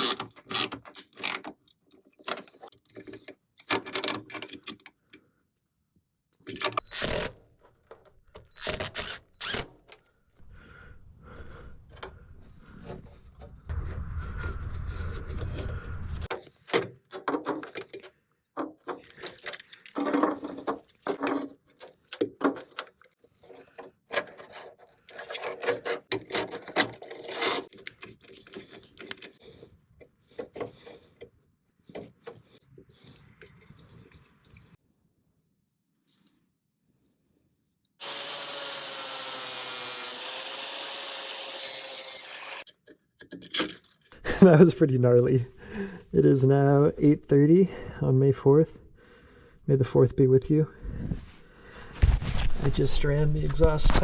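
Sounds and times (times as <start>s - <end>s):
small motor running: 38.0s - 42.6s.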